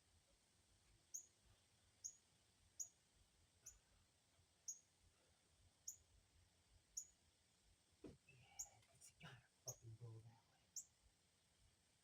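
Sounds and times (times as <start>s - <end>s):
faint high-pitched chirps: 1.1s - 1.4s, 2.0s - 2.2s, 2.8s - 3.0s, 3.6s - 3.9s, 4.6s - 4.9s, 5.8s - 6.1s, 7.0s - 7.2s, 8.3s - 8.9s, 9.6s - 9.9s, 10.7s - 11.0s.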